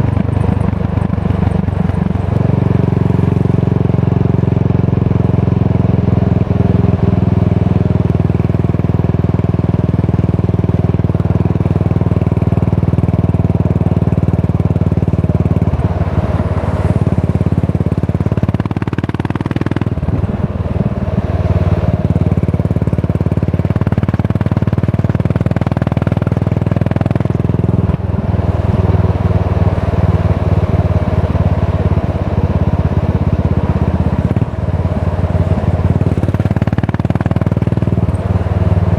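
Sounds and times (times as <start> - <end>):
single-cylinder motorcycle exhaust note: 0.0 - 38.9.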